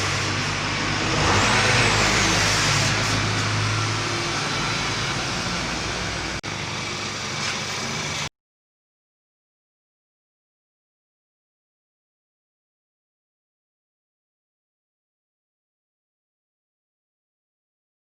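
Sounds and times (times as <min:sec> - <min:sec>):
turbocharged car engine running: 0:00.0 - 0:08.3.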